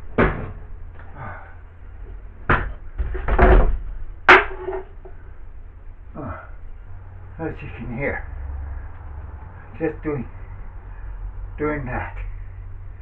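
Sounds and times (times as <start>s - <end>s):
steady low hum: 0.0s - 13.0s
knocks of hard objects: 2.5s - 5.2s.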